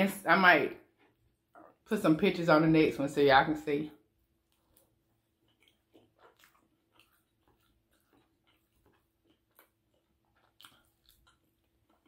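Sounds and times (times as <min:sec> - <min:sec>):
person chewing: 0:00.9 - 0:01.9, 0:04.0 - 0:12.0.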